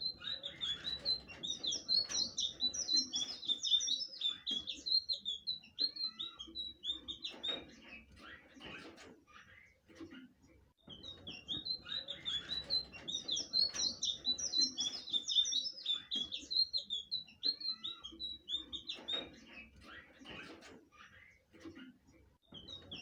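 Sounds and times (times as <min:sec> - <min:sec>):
bird singing sliding notes: 0:00.0 - 0:07.6, 0:11.0 - 0:19.8.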